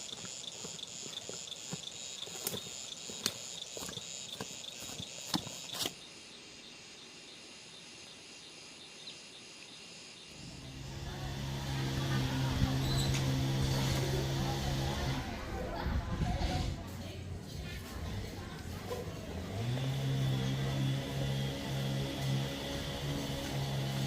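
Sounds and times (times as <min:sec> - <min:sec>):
insects trilling in chorus: 0:00.0 - 0:10.8
low engine hum: 0:10.4 - 0:24.0.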